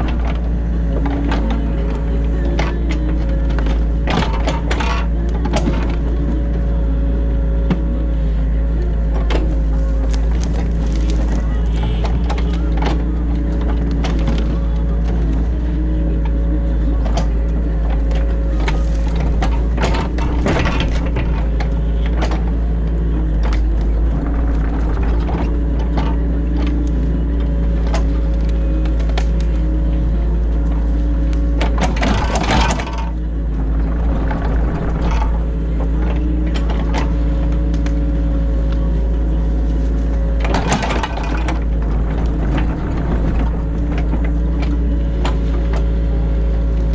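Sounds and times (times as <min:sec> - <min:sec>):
excavator diesel engine running: 0:00.0 - 0:46.9
hydraulic bucket clunks and knocks: 0:09.0 - 0:30.1, 0:31.4 - 0:38.4, 0:40.3 - 0:46.1.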